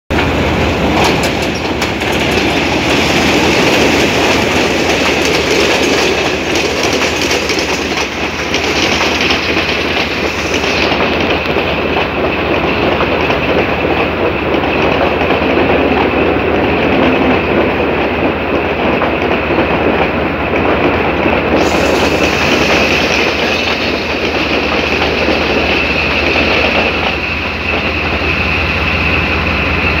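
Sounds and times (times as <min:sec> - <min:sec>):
train passing close by: 0:00.1 - 0:30.0
wheels clattering over rail joints: 0:00.1 - 0:30.0
high-pitched squeal: 0:01.4 - 0:12.0, 0:21.6 - 0:30.0.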